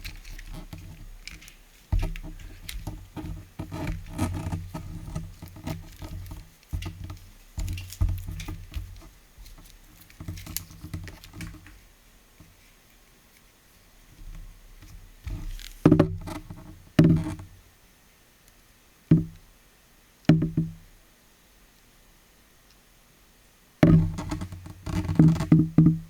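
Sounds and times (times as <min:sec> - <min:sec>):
plastic parts clicking and rattling: 0:00.0 - 0:11.8.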